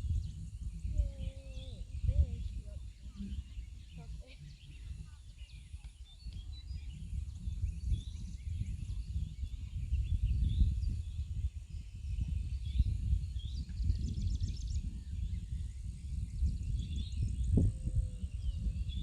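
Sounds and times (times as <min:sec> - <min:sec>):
small birds chirping: 0:00.0 - 0:19.0
wind rumbling on microphone: 0:00.0 - 0:19.0.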